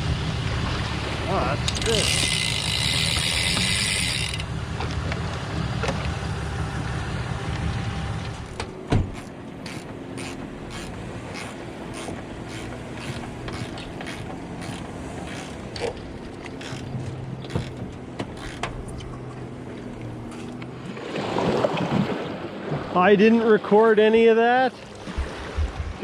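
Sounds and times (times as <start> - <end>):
hand ratchet clicking: 1.7 - 4.5, 9.1 - 15.9, 16.5 - 18.8.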